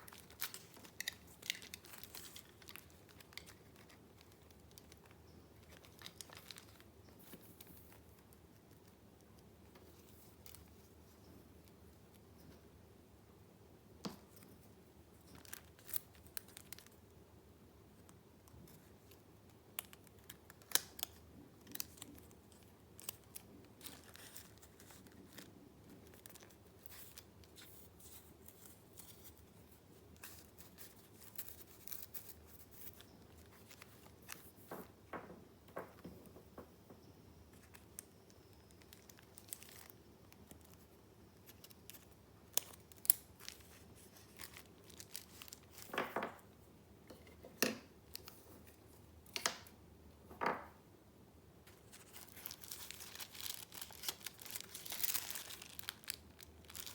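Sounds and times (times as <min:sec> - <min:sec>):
paper rustling and crinkling: 0:00.0 - 0:08.9, 0:19.8 - 0:35.0, 0:37.5 - 0:46.4, 0:51.7 - 0:56.9.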